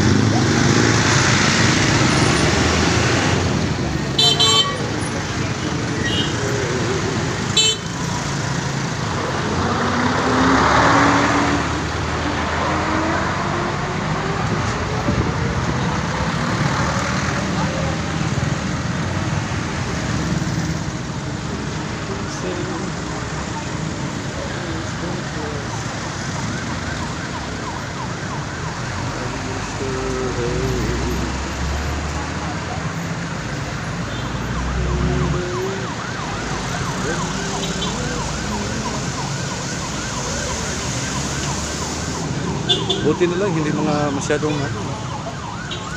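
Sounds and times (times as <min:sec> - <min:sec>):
emergency vehicle siren: 0:00.0 - 0:45.9
road traffic noise: 0:00.0 - 0:45.9
vehicle engine rumble: 0:00.0 - 0:45.9
vehicle passing close by: 0:08.5 - 0:18.4
vehicle accelerating away: 0:09.1 - 0:18.4.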